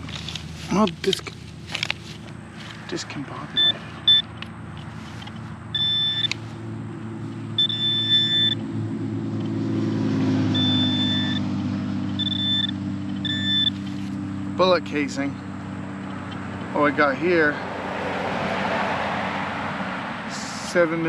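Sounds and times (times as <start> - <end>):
metal detector beeping: 3.5 - 4.5, 5.3 - 6.5, 7.5 - 8.7, 10.5 - 11.5, 12.1 - 14.0.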